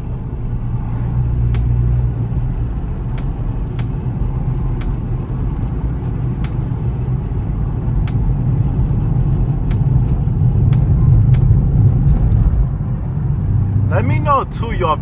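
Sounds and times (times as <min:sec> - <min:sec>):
deep car exhaust drone: 0:00.0 - 0:15.0
sharp ticks: 0:01.6 - 0:12.5.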